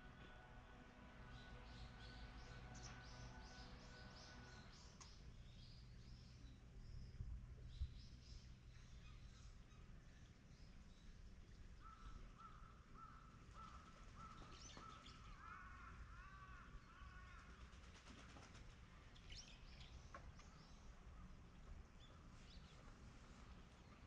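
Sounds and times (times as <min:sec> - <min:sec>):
low steady rumble: 0:00.0 - 0:18.0
faint bird calls: 0:11.7 - 0:18.6.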